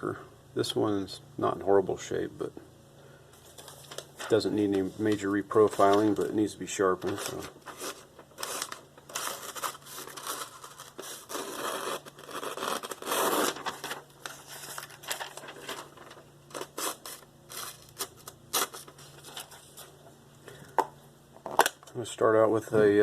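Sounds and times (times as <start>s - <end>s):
scraping and rustling handling noises: 3.3s - 20.2s.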